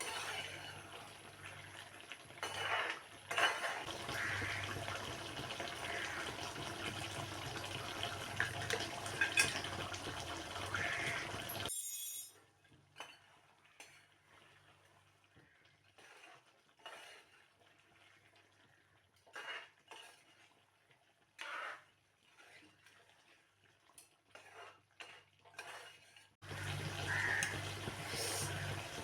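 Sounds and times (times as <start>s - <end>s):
dishes and utensils clinking: 2.4s - 3.9s, 8.4s - 10.1s
crow cawing: 4.1s - 4.9s, 5.9s - 6.3s, 10.7s - 11.4s, 26.6s - 27.9s.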